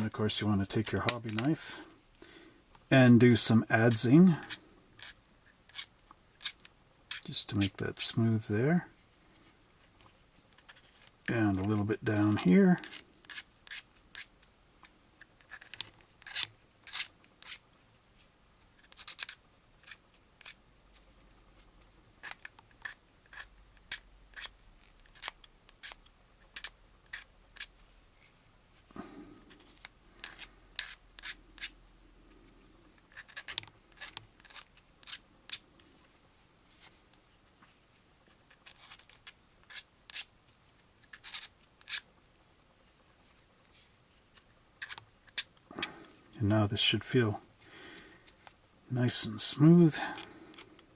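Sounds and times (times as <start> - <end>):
knife blade scraping plastic: 3.9 - 7.8, 10.5 - 14.4, 15.2 - 17.6, 18.8 - 20.6, 22.2 - 27.8, 29.4 - 31.8, 33.0 - 35.6, 38.3 - 40.3, 41.0 - 42.1, 44.3 - 46.0.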